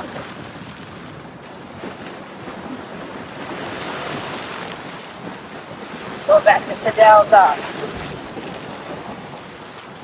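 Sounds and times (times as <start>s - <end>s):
steady outdoor rushing noise: 6.3s - 7.7s.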